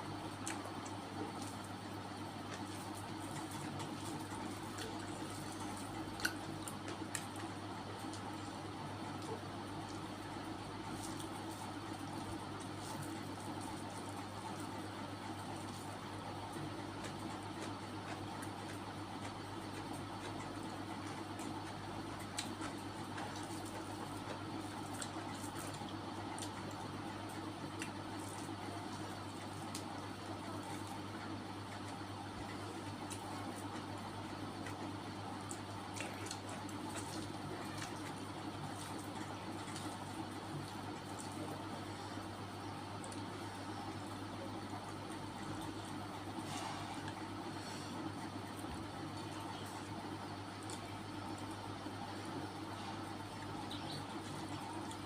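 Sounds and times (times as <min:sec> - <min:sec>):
steady low hum: 0:00.0 - 0:55.0
wet chewing and mouth clicks: 0:00.3 - 0:08.6, 0:16.5 - 0:29.9, 0:34.6 - 0:42.0.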